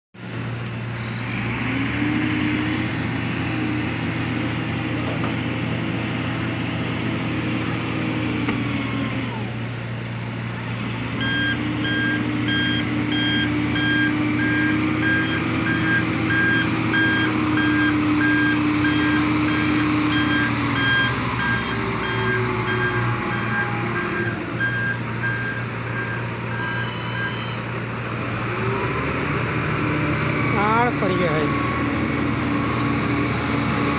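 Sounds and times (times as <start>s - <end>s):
diesel engine humming: 0.2s - 33.9s
truck reversing alarm beeping: 11.0s - 27.8s, 29.6s - 33.9s.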